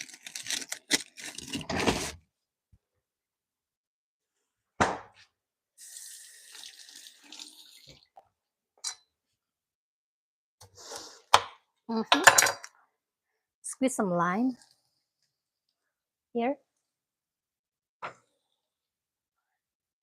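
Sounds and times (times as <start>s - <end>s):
water running from a tap: 5.8s - 8.1s.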